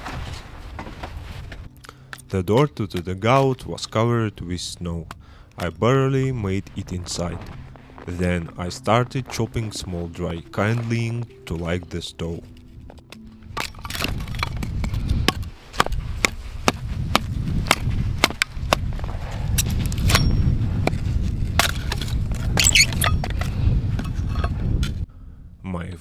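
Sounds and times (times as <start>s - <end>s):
blade chopping kindling: 13.1s - 24.6s.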